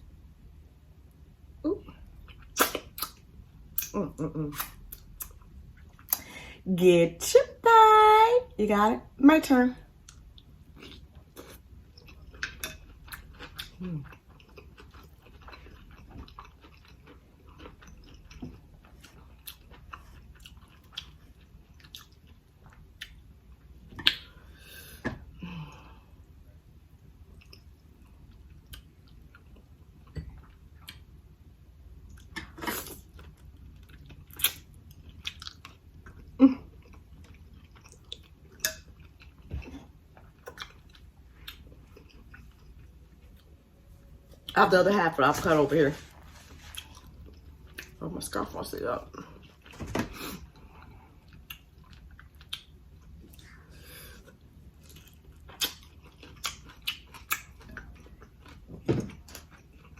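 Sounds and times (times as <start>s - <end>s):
mouth clicks and snaps: 2.5s - 3.2s
chewing and smacking: 10.0s - 24.4s, 26.9s - 31.2s, 32.0s - 43.6s, 50.4s - 59.9s.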